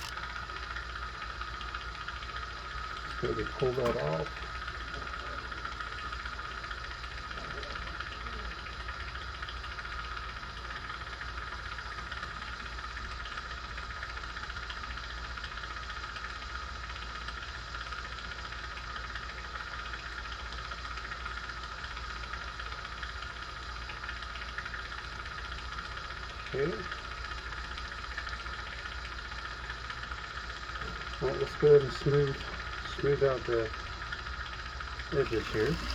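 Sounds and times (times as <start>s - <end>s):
gas torch hissing: 30.8s - 35.9s.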